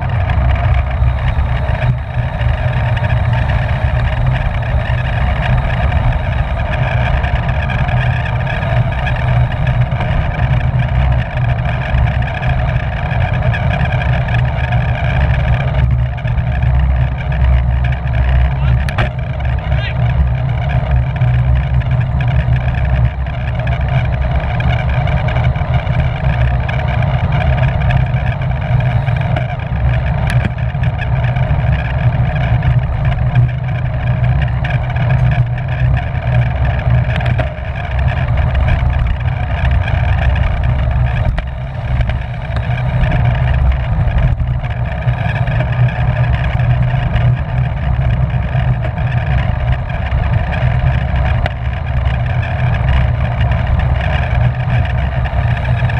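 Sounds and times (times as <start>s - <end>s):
wind rushing over microphone: 0.0s - 55.9s.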